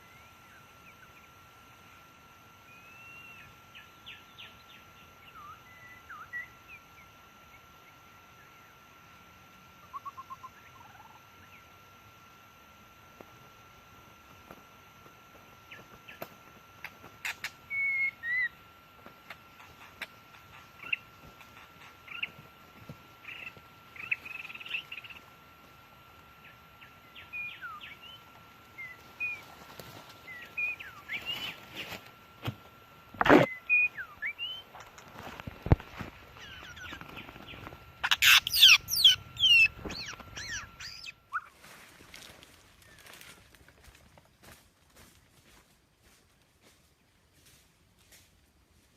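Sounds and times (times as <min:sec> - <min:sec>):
songbird chirps and whistles: 0:02.6 - 0:08.5, 0:09.9 - 0:11.7, 0:17.2 - 0:18.6, 0:26.4 - 0:29.5, 0:33.4 - 0:34.8, 0:36.4 - 0:41.6.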